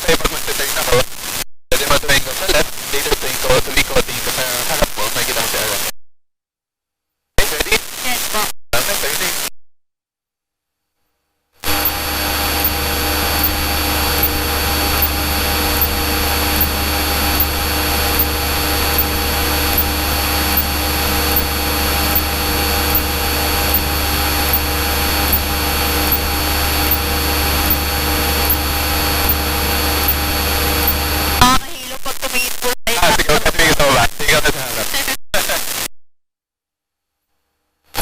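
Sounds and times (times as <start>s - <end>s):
propeller plane engine drone: 11.6s - 31.4s
faint regular pulse: 11.6s - 31.5s.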